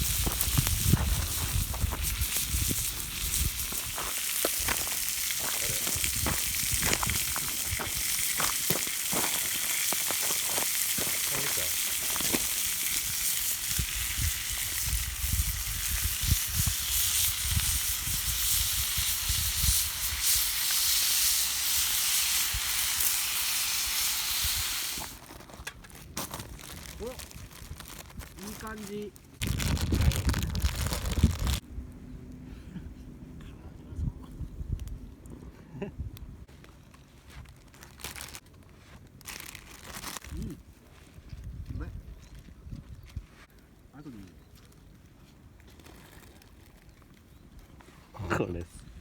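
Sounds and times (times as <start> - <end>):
food sizzling in a pan: 0.0 - 25.2.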